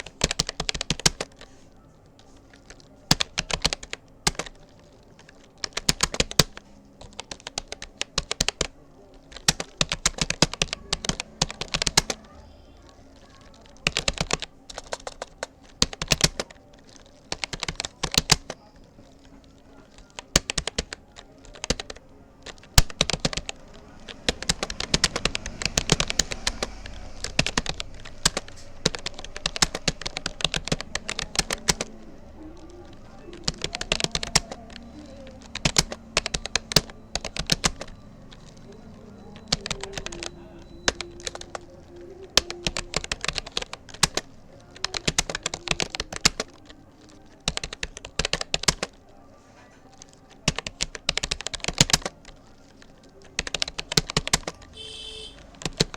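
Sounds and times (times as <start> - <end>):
fast typing on keyboard: 0.0 - 55.9.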